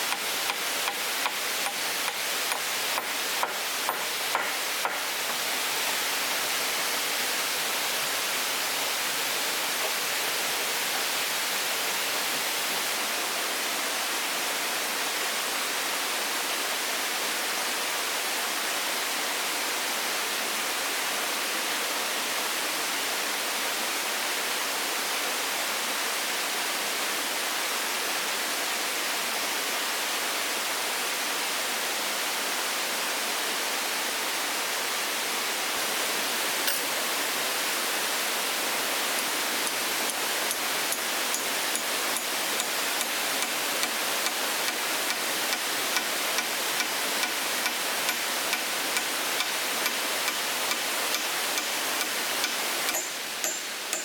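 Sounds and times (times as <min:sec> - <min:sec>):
steady rushing hiss: 0:00.0 - 0:12.6, 0:35.7 - 0:54.0.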